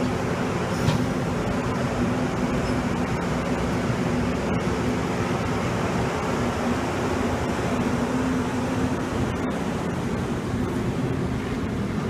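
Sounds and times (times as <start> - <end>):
train coaches rolling: 0.0 - 12.0.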